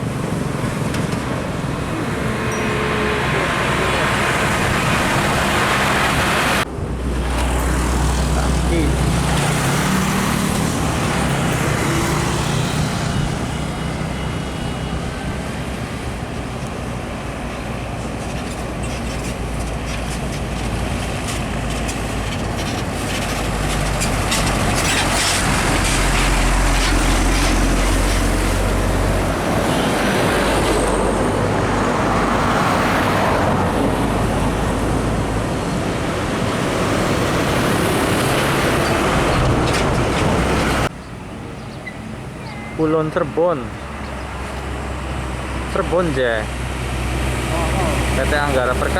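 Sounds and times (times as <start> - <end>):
diesel engines droning: 0.0 - 48.9
tyres hissing on road: 40.4 - 48.9.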